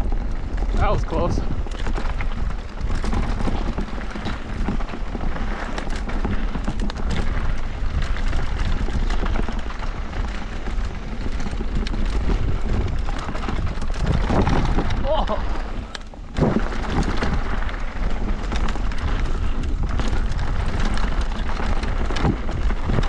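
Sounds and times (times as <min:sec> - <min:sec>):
bike rattling clicks and knocks: 0:00.0 - 0:23.0
bike tyres rolling on dirt: 0:00.0 - 0:23.0
wind buffeting microphone: 0:00.0 - 0:23.0.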